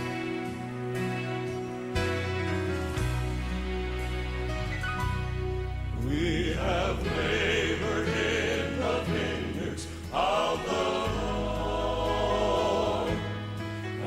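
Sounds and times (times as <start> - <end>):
held low notes: 3.1 - 13.6
choir singing: 5.9 - 14.0.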